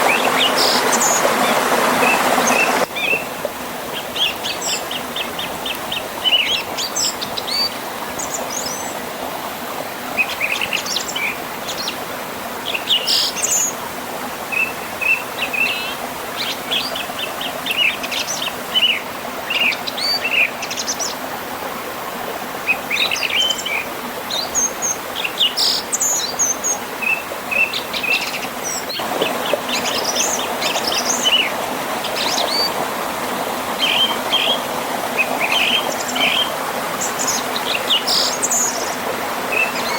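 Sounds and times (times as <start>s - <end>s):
river rushing over waterfall: 0.0s - 13.0s, 26.3s - 39.9s
birds singing and chirping: 4.0s - 9.0s, 12.6s - 13.8s, 22.7s - 32.8s, 33.8s - 39.9s.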